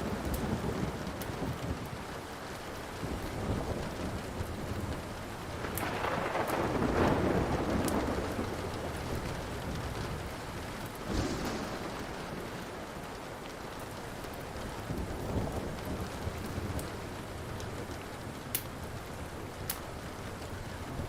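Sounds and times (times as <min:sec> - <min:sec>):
steady rain: 0:00.0 - 0:21.0
wood fire crackling: 0:03.9 - 0:21.0
thunder: 0:05.6 - 0:16.8.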